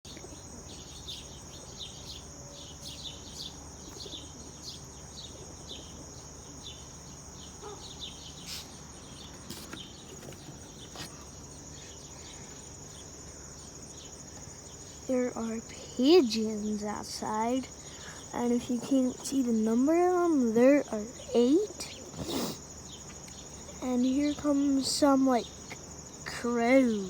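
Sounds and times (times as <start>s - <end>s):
insects trilling: 0.1s - 27.0s
small birds chirping: 0.1s - 27.0s.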